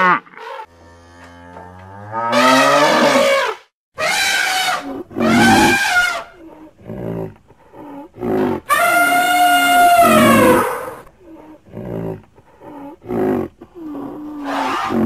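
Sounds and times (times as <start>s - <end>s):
loud wild animal calls: 2.3s - 15.0s
soft animal grunting: 5.0s - 8.7s, 10.0s - 15.0s.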